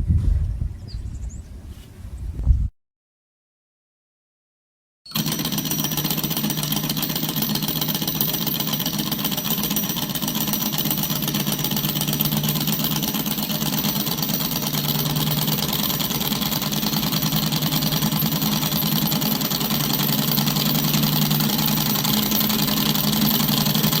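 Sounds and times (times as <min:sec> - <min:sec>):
engine mechanical rattle: 0:05.2 - 0:24.0.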